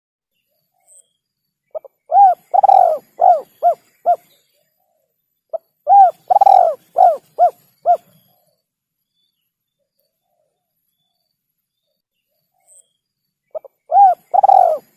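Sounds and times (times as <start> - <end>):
dove cooing: 1.7 - 4.2, 5.9 - 8.1, 13.5 - 14.9.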